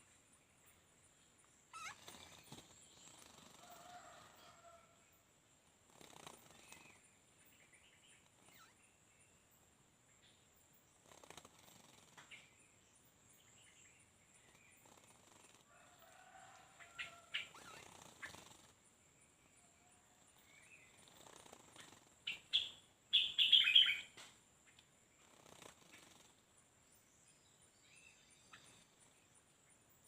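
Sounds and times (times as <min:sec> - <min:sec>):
small birds chirping: 0:00.0 - 0:04.7, 0:05.7 - 0:30.0
wings fluttering: 0:01.7 - 0:04.8, 0:05.8 - 0:07.0, 0:11.0 - 0:12.4, 0:14.4 - 0:18.8, 0:20.8 - 0:22.6, 0:25.2 - 0:26.5.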